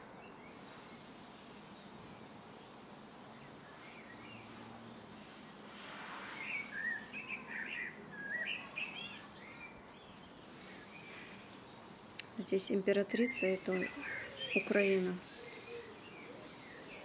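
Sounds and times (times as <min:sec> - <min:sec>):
faint outdoor background noise: 0:00.0 - 0:17.0
songbird twittering: 0:06.3 - 0:12.5, 0:13.1 - 0:17.0.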